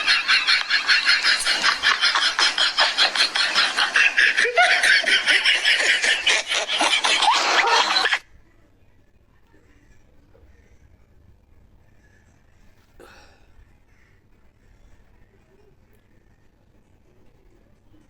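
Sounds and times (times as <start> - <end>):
parrot cackling: 0.0 - 8.2.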